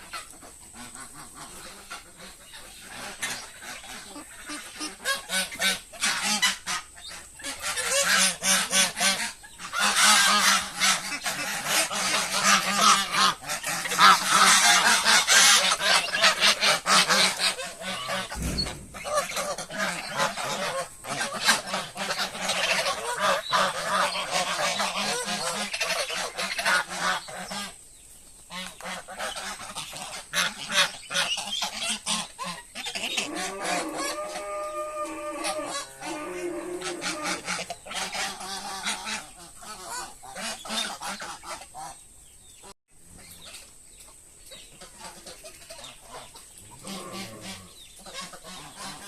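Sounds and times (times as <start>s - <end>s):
poultry flock calling: 0.0s - 27.8s, 28.5s - 42.0s, 44.7s - 49.0s.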